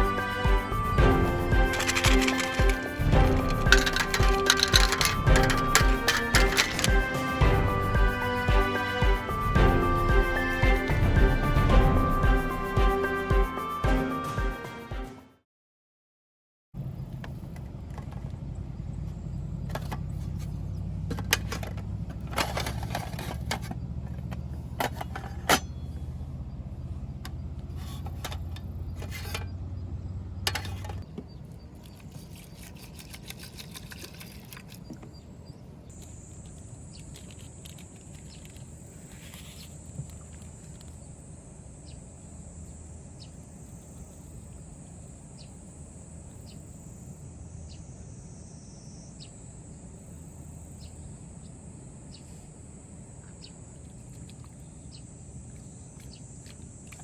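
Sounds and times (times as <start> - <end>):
low hum: 0.0 - 13.5
insects buzzing: 0.0 - 14.9, 35.9 - 57.0
clicks and clatter: 1.6 - 7.2.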